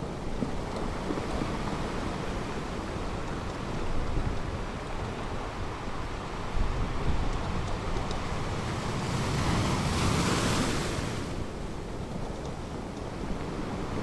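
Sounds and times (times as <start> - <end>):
ocean surf washing on beach: 0.0 - 14.0.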